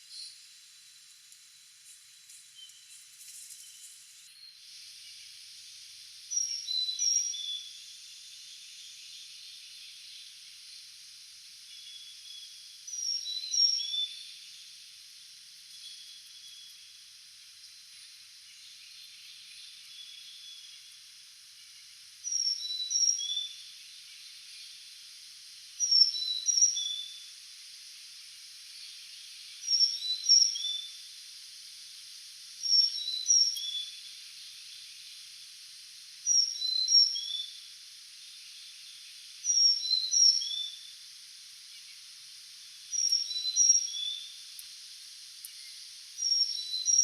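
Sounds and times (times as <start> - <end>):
faint steady hiss: 0.0 - 47.0
songbird singing: 2.4 - 5.6, 6.2 - 10.9, 11.7 - 14.8, 15.6 - 25.0, 25.8 - 27.4, 28.7 - 31.2, 32.6 - 35.4, 36.2 - 41.0, 42.7 - 44.8, 45.4 - 47.0.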